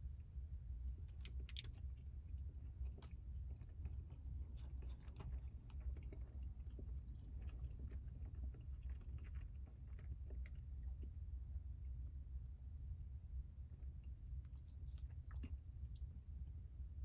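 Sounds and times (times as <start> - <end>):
steady low hum: 0.0 - 17.0
person chewing food: 1.0 - 11.2, 13.8 - 16.1.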